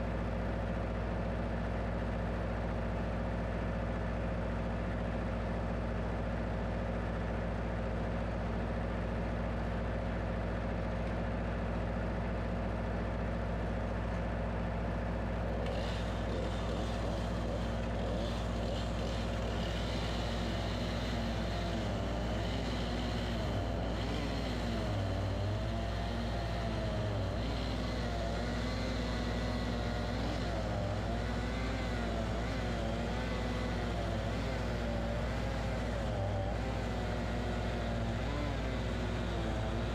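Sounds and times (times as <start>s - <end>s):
sawmill engine running: 14.8s - 39.9s.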